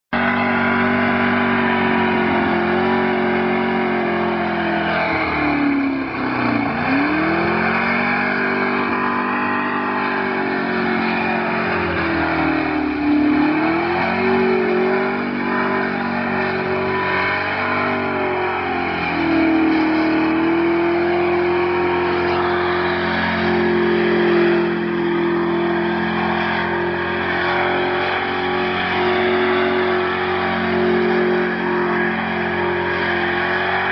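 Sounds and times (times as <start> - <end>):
car engine revving: 0.1 - 33.9
tyres squealing: 0.2 - 33.9.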